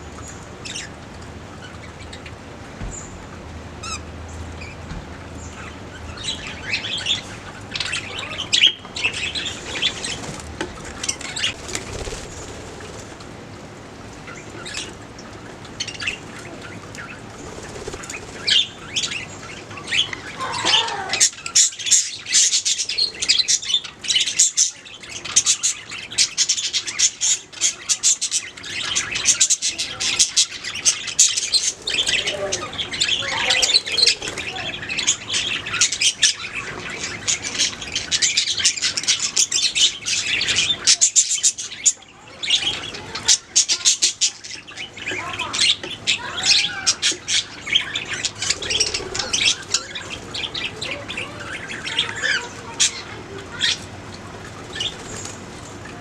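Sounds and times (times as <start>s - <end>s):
budgerigars chirping: 15.8s - 53.8s.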